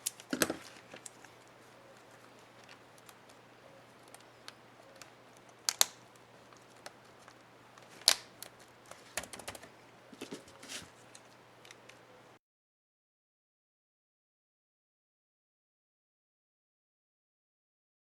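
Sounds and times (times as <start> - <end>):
plastic keycap clicks: 4.9 - 6.0.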